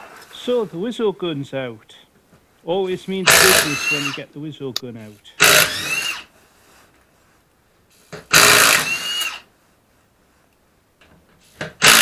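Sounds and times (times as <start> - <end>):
impact wrench whine: 3.2 - 4.3, 5.4 - 6.3, 8.2 - 9.5, 11.6 - 12.0.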